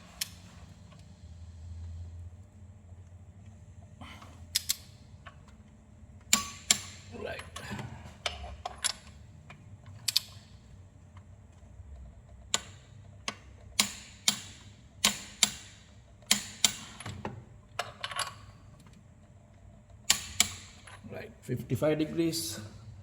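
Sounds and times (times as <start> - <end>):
wrench clicking on bolts: 4.5 - 4.9, 6.3 - 7.1, 10.0 - 10.5, 12.5 - 17.2, 20.0 - 21.0.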